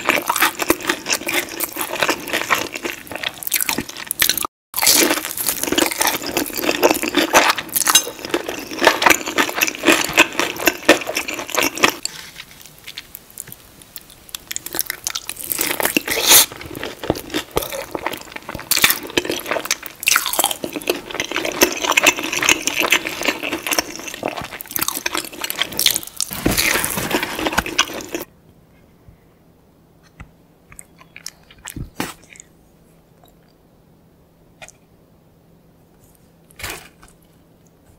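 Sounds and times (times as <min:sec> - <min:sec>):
crunching and chewing fried food: 0:00.0 - 0:28.3.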